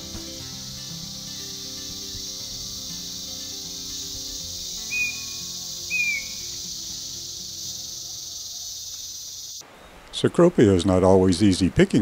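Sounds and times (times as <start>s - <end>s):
insects droning: 0.0s - 9.8s
whistled calls: 0.8s - 9.9s.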